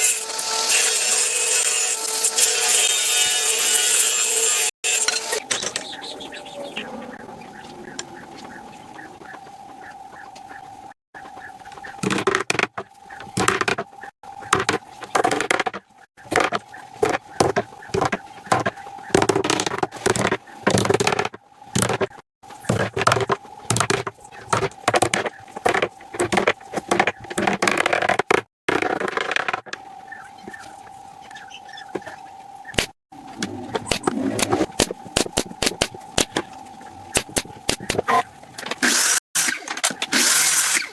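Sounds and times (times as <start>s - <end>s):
wood scraping and knocking: 11.3s - 29.8s.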